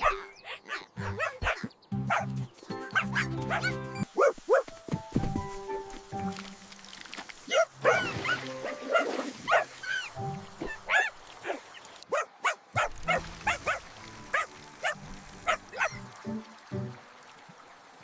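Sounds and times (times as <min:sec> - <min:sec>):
cartoon puppy yips and barks: 0:00.0 - 0:02.2, 0:07.5 - 0:13.8, 0:14.4 - 0:16.0
gentle background music: 0:01.0 - 0:11.3, 0:12.8 - 0:18.0.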